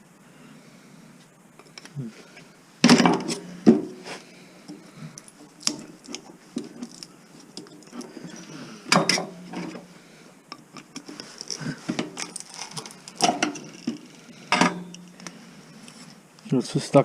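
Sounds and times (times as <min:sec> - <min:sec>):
metal clanking and scraping: 0:02.8 - 0:09.9, 0:10.8 - 0:15.2.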